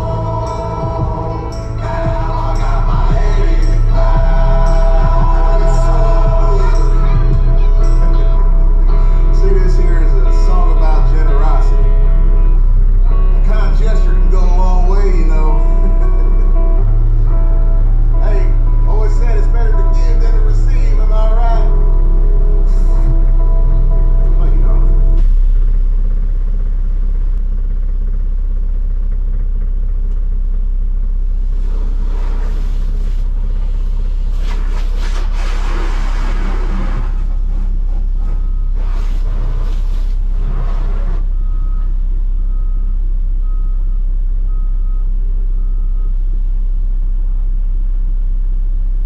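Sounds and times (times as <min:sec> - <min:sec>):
reversing beeper: 0:00.0 - 0:26.2, 0:31.5 - 0:46.4
truck diesel engine running: 0:00.0 - 0:47.2
rushing hissing noise: 0:31.4 - 0:41.2.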